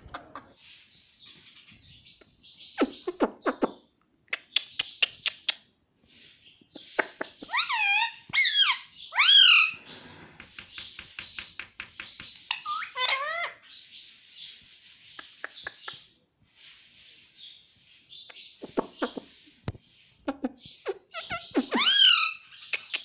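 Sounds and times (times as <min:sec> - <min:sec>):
soft hissy parrot chatter: 0:04.3 - 0:23.0
parrot squawking: 0:07.4 - 0:09.8, 0:12.5 - 0:13.6, 0:20.3 - 0:22.5.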